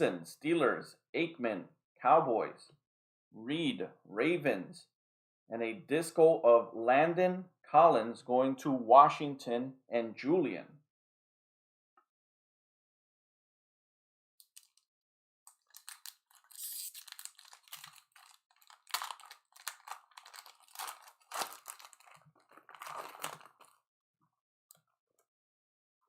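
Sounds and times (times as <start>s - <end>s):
foil wrapper crinkling and tearing: 15.5s - 23.8s.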